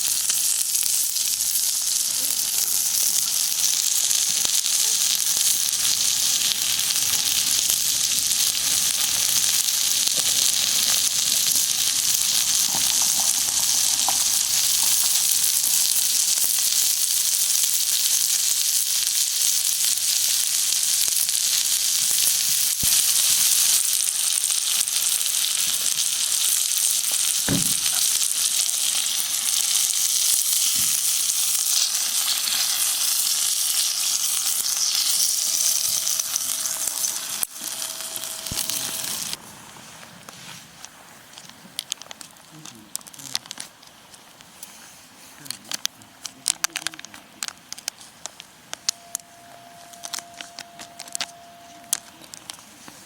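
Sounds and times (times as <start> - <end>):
steak sizzling on hot stone: 0.0 - 44.9, 45.6 - 53.0
sharp knocks: 27.5 - 28.0.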